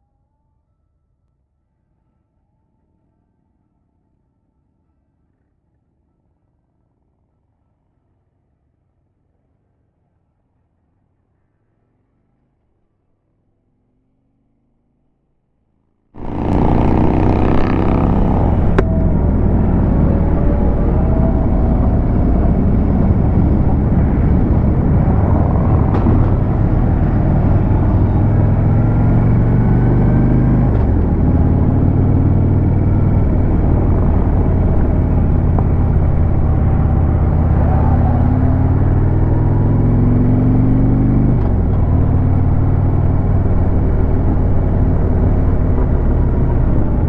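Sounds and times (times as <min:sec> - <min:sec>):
motorcycle engine under load: 0:16.2 - 0:47.0
wind rumble: 0:16.2 - 0:47.0.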